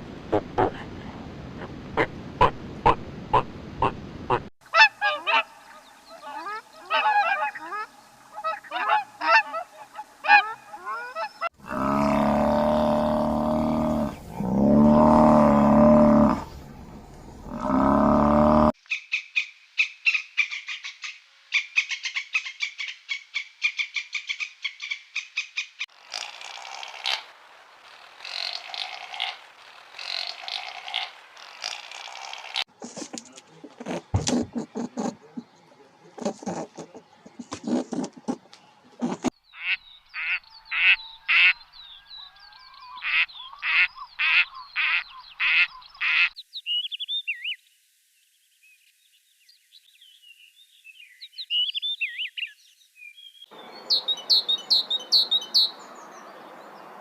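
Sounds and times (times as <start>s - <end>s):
long loud animal calls: 6.1s - 16.6s.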